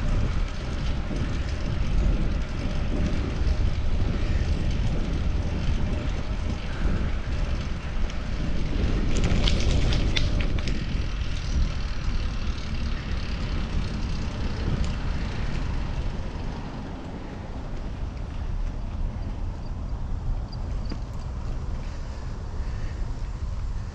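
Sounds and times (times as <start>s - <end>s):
bicycle road rumble: 0.0s - 23.9s
wind buffeting microphone: 0.0s - 23.9s.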